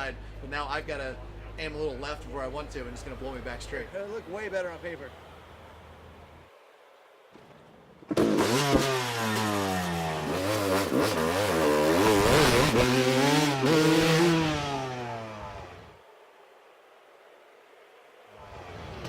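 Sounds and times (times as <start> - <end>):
motorcycle engine revving: 8.1 - 16.0.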